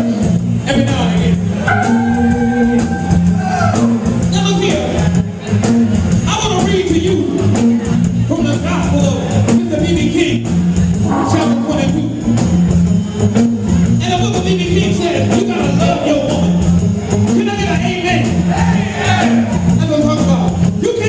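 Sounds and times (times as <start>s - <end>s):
blues band playing: 0.0s - 21.0s
percussion: 1.2s - 6.4s, 9.3s - 21.0s
repeating bass line: 1.6s - 4.9s, 10.5s - 14.0s
electric guitar: 11.0s - 13.8s.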